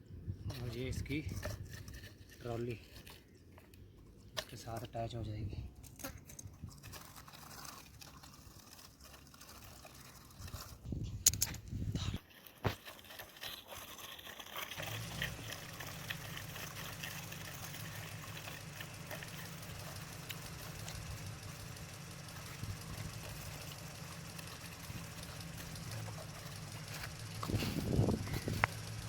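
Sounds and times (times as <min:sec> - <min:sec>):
engine idling hum with flutter: 0:00.0 - 0:29.0
handling knocks and clicks: 0:00.5 - 0:08.0, 0:09.3 - 0:12.9.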